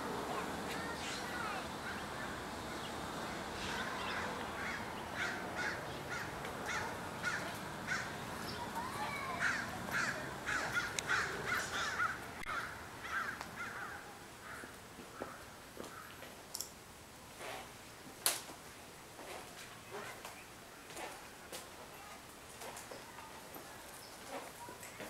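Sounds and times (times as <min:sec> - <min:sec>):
birds calling: 0:00.2 - 0:16.2.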